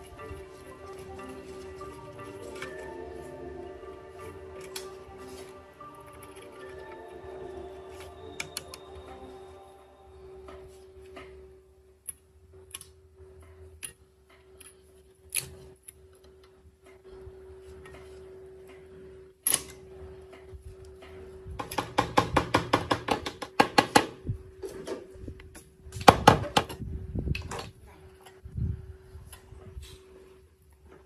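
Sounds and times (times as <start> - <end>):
steady hum: 0.0 - 21.8.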